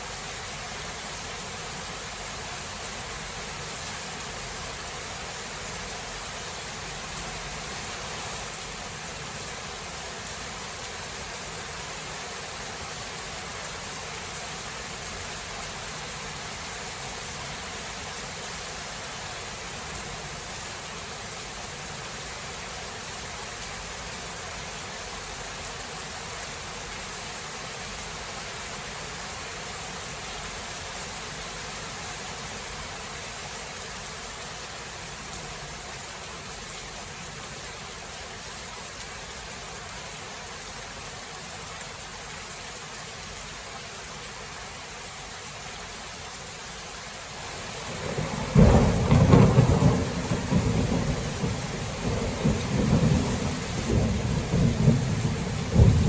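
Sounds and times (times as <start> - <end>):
steady rain falling: 0.0 - 56.0
thunder rumbling: 47.8 - 56.0.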